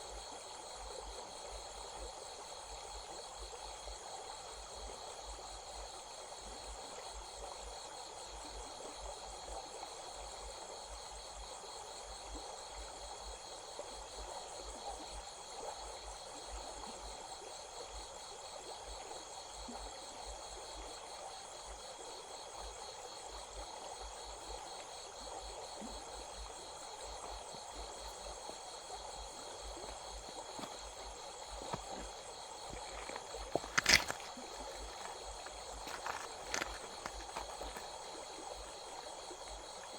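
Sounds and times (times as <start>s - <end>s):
crickets and insects trilling: 0.0s - 39.9s
stream rushing: 29.8s - 38.7s.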